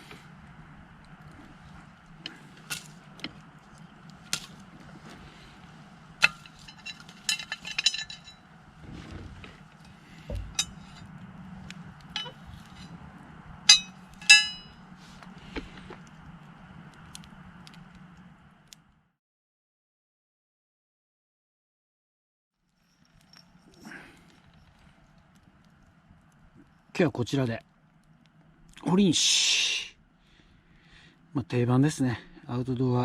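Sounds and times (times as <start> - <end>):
metal cooking gear clinking: 6.2 - 8.4, 9.8 - 11.1, 12.1 - 12.9, 13.7 - 14.8.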